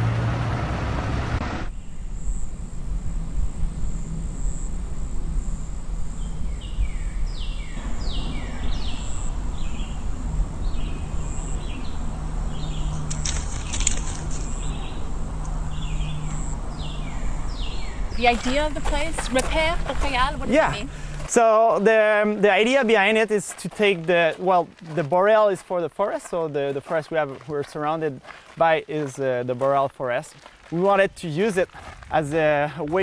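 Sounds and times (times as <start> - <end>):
low outdoor rumble: 0.0 - 23.1
bird chirping: 6.1 - 21.2.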